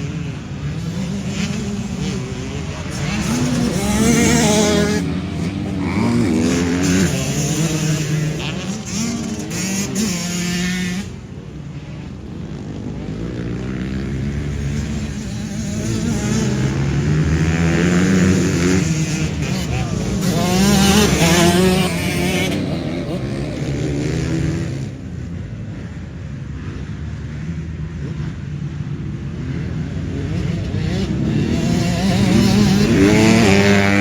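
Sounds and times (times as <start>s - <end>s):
motorbike engine revving: 0.0s - 11.1s, 13.4s - 25.0s, 30.0s - 34.0s.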